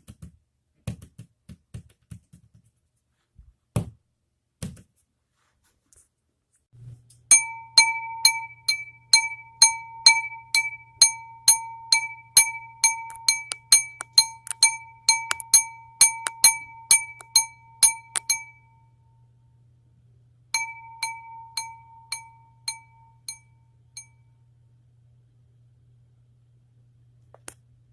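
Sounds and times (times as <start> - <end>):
glass clinking: 7.3 - 18.6.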